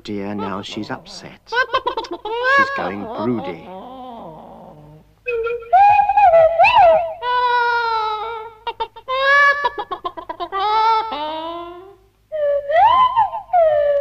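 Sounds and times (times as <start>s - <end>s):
cartoon chicken squawking: 0.3s - 4.3s.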